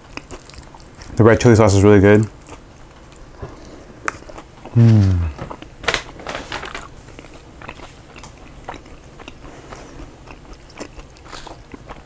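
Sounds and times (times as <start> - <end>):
wet chewing clicks and smacks: 0.0 - 1.2, 2.2 - 3.4, 7.1 - 12.0.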